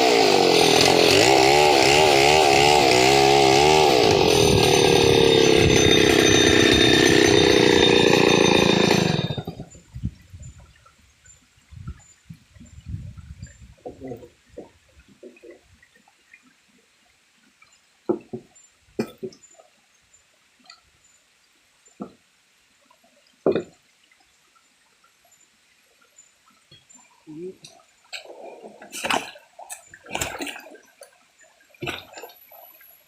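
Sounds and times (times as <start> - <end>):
chainsaw engine running: 0.0 - 9.7.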